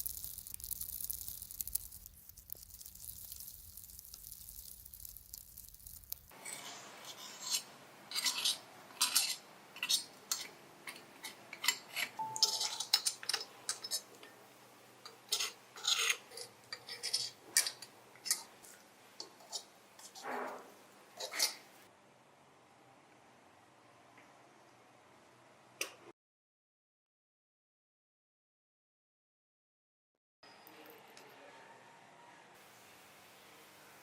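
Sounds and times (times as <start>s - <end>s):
soft hiss: 0.0s - 6.4s
hand tools clinking on metal parts: 8.1s - 14.3s.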